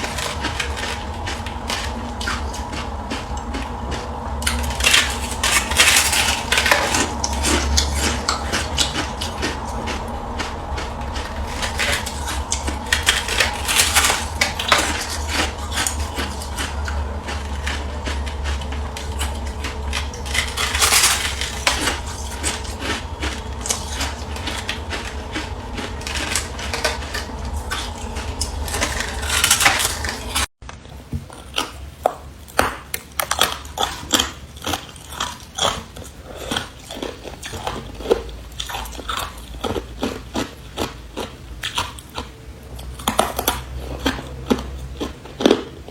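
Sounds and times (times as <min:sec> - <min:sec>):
ice being crunched: 0:00.0 - 0:30.5
low hum: 0:00.0 - 0:30.8.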